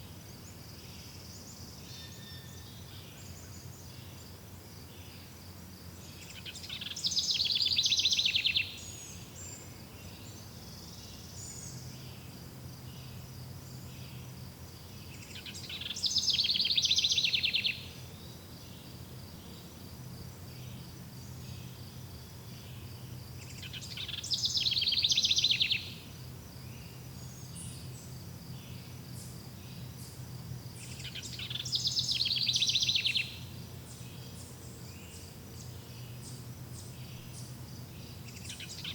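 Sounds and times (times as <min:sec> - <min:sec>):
insects chirping: 0:00.0 - 0:38.9
songbird trilling: 0:06.3 - 0:09.6, 0:15.0 - 0:18.0, 0:23.4 - 0:26.0, 0:30.8 - 0:38.9.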